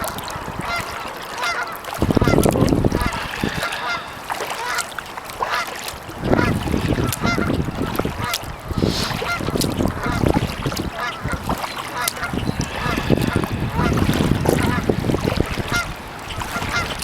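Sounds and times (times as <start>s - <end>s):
geese honking: 0.0s - 17.0s
low gusty rumble: 2.0s - 5.0s, 6.1s - 17.0s.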